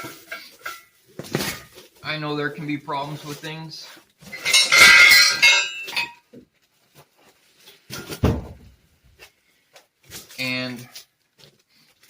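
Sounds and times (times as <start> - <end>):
steel parts clanking and rattling: 4.2 - 6.2.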